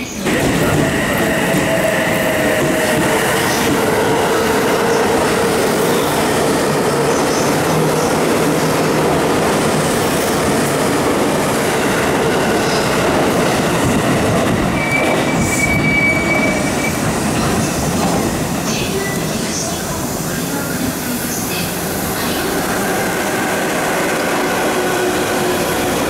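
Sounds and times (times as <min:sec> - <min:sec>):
train wheels rushing on rail: 0:00.0 - 0:26.0
high wheel squeal: 0:14.8 - 0:17.1.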